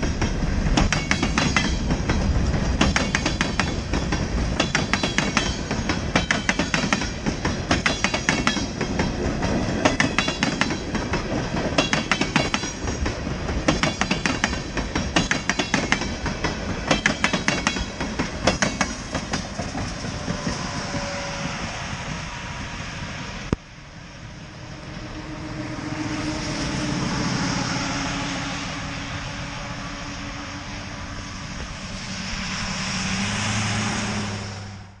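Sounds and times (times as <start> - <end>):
train wheels clickety-clack: 0.0 - 21.7
steady rushing noise: 0.0 - 35.0.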